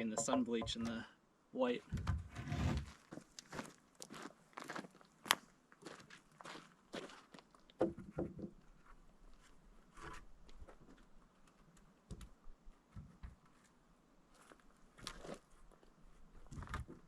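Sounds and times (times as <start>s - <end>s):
dull wooden knocks: 0.0s - 1.0s, 1.9s - 2.6s, 7.8s - 8.6s.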